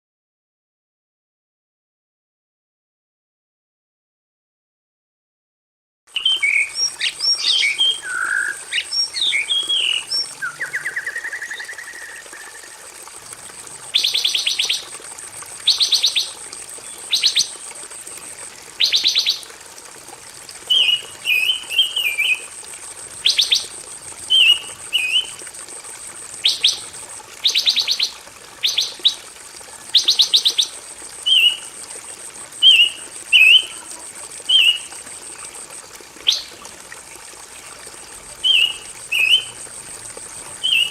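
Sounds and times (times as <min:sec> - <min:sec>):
songbird chirping and trilling: 0:06.2 - 0:12.8, 0:38.4 - 0:39.5, 0:40.6 - 0:40.9.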